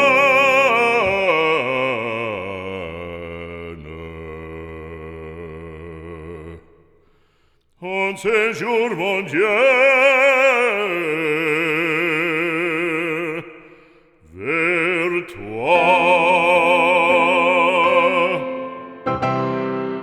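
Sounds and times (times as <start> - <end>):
operatic voice singing: 0.0 - 6.8, 7.8 - 19.3.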